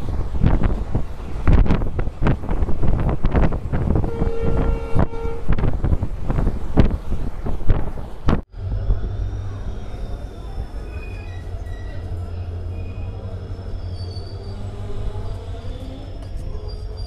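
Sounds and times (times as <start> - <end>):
wind buffeting microphone: 0.0 - 16.6
train wheels rumbling: 0.0 - 17.0
locomotive horn: 4.0 - 5.7
faint wheel squeal: 9.1 - 17.0.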